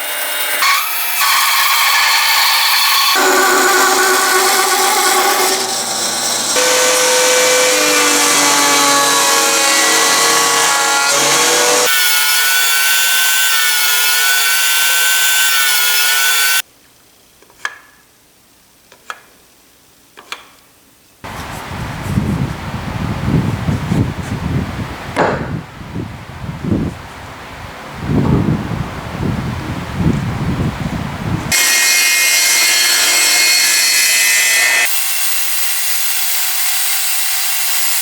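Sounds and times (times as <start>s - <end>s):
power tool whining cutting wood: 0.0s - 16.6s, 31.5s - 38.0s.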